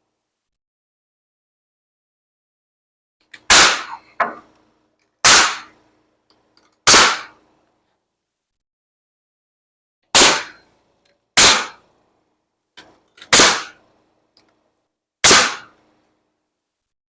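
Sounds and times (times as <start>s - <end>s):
nail gun shots: 3.4s - 4.4s, 5.2s - 5.8s, 6.8s - 7.4s, 10.1s - 10.6s, 11.4s - 11.8s, 13.2s - 13.8s, 15.2s - 15.8s.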